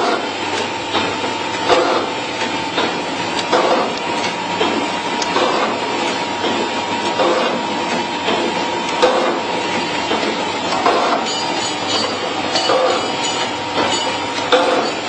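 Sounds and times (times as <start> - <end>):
machine noise: 0.0 - 15.0
packing machine clacking: 0.0 - 15.0
thin machine whine: 9.9 - 15.0.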